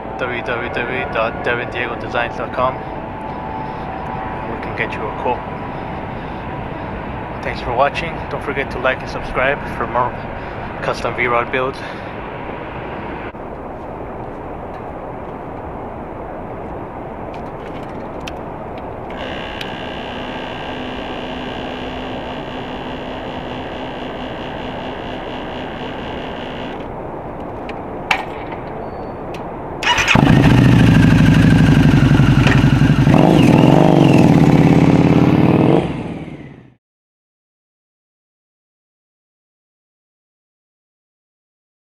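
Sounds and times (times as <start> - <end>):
whine: 0.0 - 13.4, 19.0 - 27.0, 29.8 - 36.8
steady hum: 0.0 - 16.4, 18.9 - 27.5
motorcycle engine starting and idling: 29.8 - 36.6.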